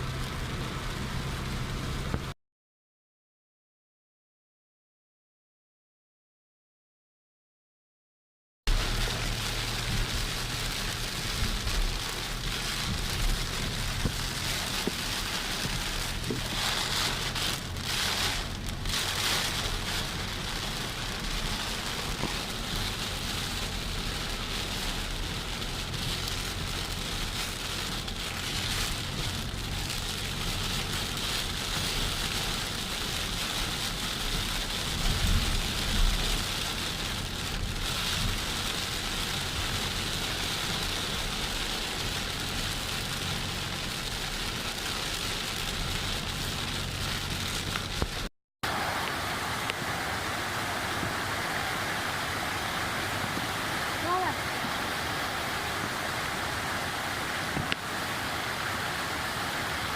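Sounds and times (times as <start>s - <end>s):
heavy rain hiss: 0.0s - 2.3s, 8.7s - 59.9s
low rumble: 8.7s - 31.4s.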